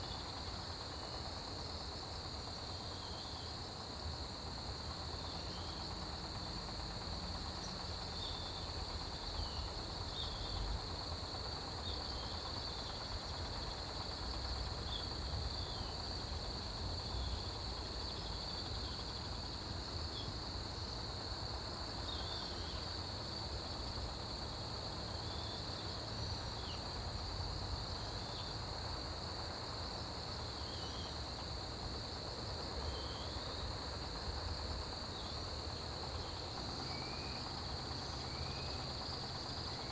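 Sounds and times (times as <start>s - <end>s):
crickets trilling: 0.0s - 39.9s
pulsing insect chirps: 8.1s - 39.9s.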